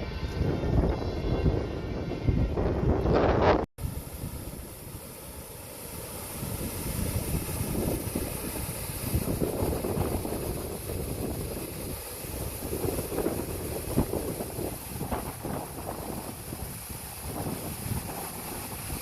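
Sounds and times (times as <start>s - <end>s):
wind buffeting microphone: 0.0s - 19.0s
steady hiss: 3.8s - 19.0s.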